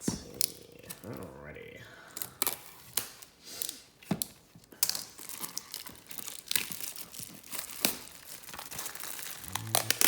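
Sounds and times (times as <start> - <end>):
plastic wrapping crinkling and tearing: 2.2 - 10.0.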